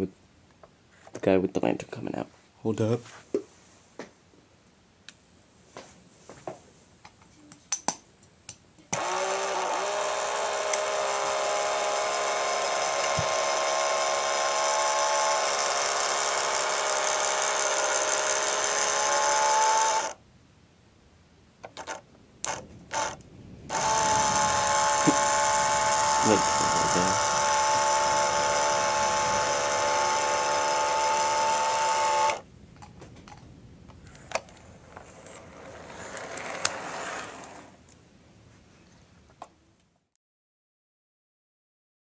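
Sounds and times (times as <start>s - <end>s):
model train motor whining: 8.9s - 20.2s, 21.8s - 32.4s, 35.0s - 37.8s.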